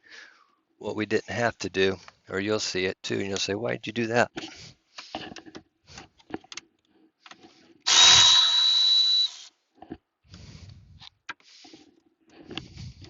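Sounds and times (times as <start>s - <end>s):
clicks and clatter of parts: 4.4s - 7.6s
power drill whining: 7.8s - 9.5s.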